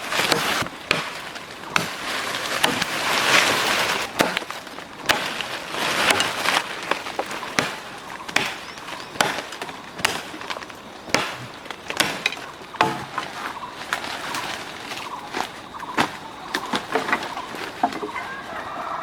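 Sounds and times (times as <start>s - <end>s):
blade chopping wood: 0.0s - 13.6s
rustling: 0.0s - 19.0s.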